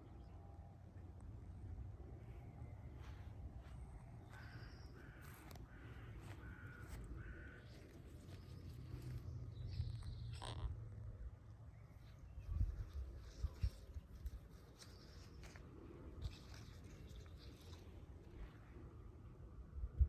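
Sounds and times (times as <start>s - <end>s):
crow cawing: 4.3s - 7.8s.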